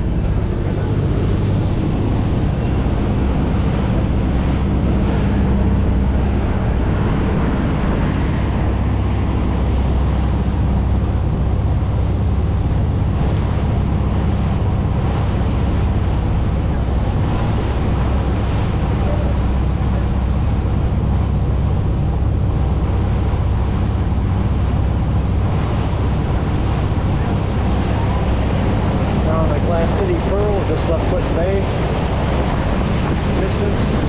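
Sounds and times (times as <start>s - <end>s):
boat engine drone: 0.0s - 34.0s
water rushing past hull: 0.0s - 34.0s
wind buffeting microphone: 0.0s - 34.0s.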